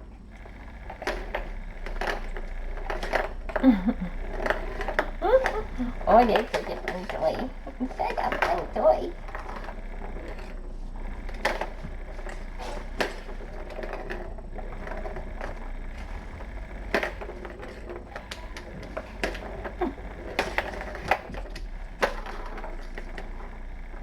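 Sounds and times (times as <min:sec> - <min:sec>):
steady low hum: 0:00.0 - 0:24.0
kittens playing with a toy: 0:00.1 - 0:24.0.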